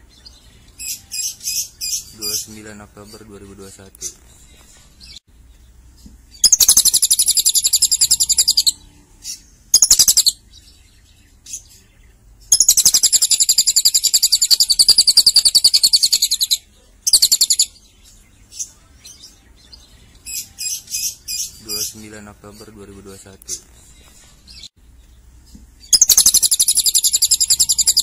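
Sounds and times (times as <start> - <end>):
lovebird chattering trills: 6.4 - 8.8, 9.7 - 10.4, 12.5 - 17.8, 25.8 - 28.0.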